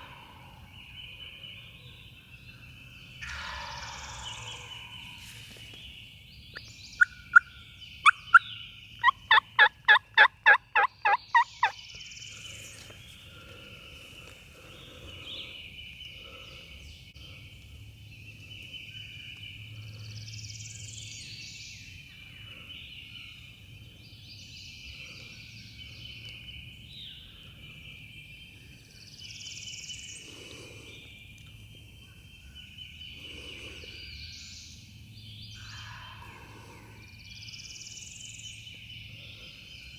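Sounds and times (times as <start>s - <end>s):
faint chirps: 3.0s - 9.2s.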